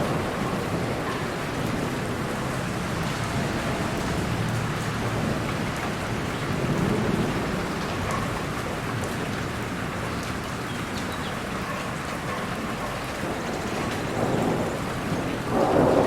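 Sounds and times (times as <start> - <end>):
distant thunder rumble: 0.0 - 9.2, 13.2 - 16.0
steady rain: 0.0 - 16.0.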